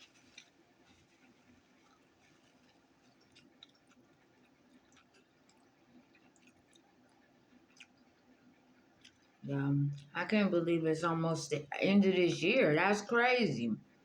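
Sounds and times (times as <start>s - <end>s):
faint chewing with lip smacks: 0.0s - 10.2s.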